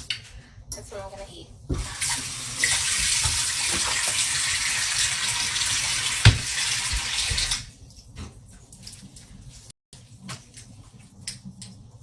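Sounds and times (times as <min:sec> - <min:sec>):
water tap running: 0:01.7 - 0:07.7.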